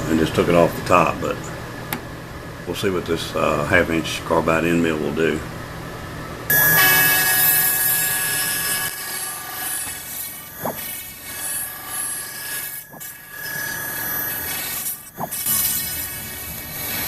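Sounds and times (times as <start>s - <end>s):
cnc router spindle whining: 6.5s - 17.0s.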